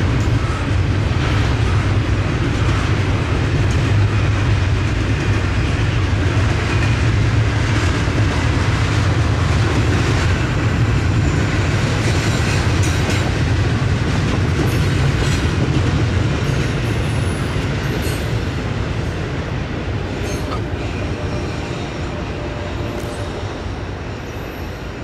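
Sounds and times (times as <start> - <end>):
freight train rumbling on rails: 0.0 - 25.0.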